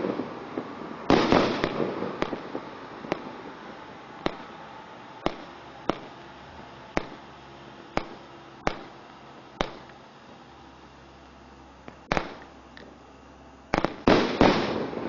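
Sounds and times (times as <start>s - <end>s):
firework bangs: 0.0s - 10.0s, 12.0s - 12.5s, 13.7s - 15.0s
faint firework crackling: 0.0s - 15.0s.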